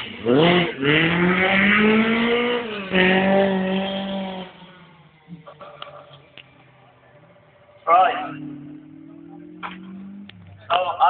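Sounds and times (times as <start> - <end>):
rally car engine accelerating: 0.0 - 11.0.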